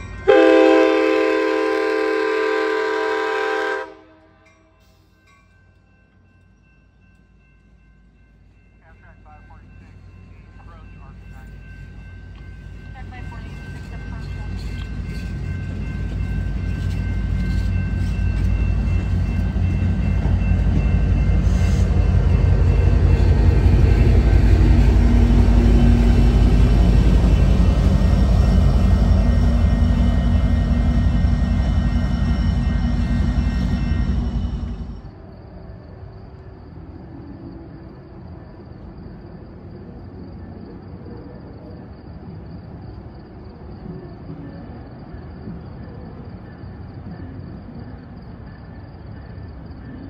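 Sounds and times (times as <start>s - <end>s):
train wheels rumbling on rail: 4.4s - 35.4s
high-pitched ringing tones: 4.4s - 50.0s.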